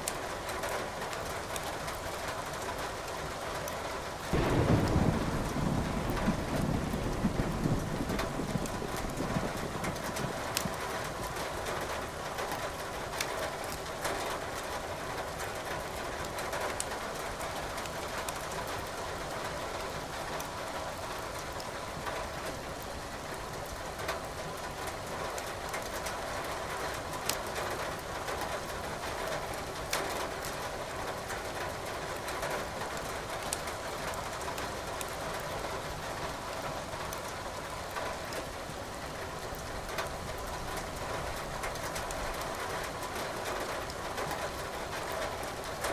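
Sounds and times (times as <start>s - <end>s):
rain falling: 0.0s - 45.9s
logs crackling and popping: 9.9s - 11.4s.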